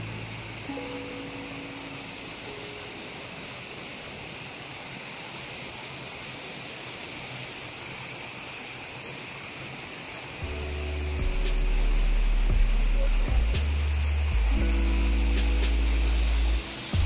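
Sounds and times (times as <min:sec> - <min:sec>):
low musical tone: 0:00.0 - 0:03.8, 0:10.4 - 0:17.0
waterfall rushing: 0:00.0 - 0:17.0.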